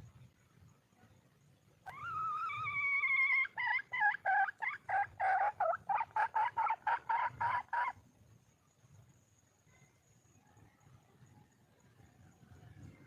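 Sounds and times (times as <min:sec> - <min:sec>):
hen clucking: 0:02.4 - 0:08.0.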